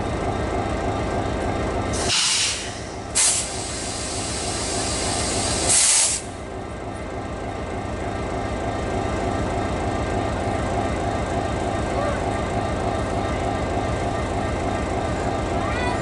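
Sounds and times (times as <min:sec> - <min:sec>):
diesel locomotive idling: 0:00.0 - 0:16.0
compressed air hissing: 0:02.0 - 0:06.3.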